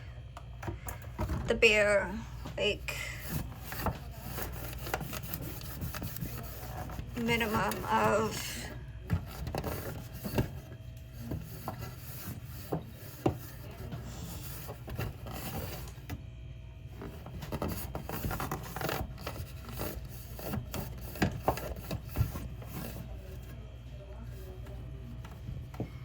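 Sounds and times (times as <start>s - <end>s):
scrubbing plastic surface: 3.1s - 16.2s, 16.9s - 23.6s.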